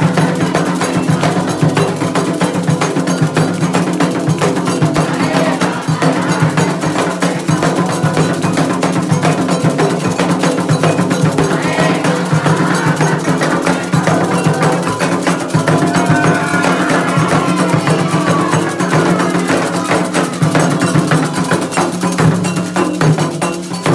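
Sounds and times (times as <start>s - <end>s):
hand drums playing fast rhythm: 0.0s - 23.9s
bell ringing: 6.3s - 23.1s.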